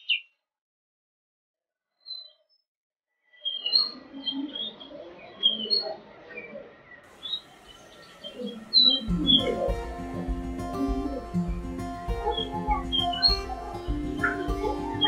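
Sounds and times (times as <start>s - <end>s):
birds chirping and chattering: 3.4s - 15.0s
music: 8.9s - 15.0s.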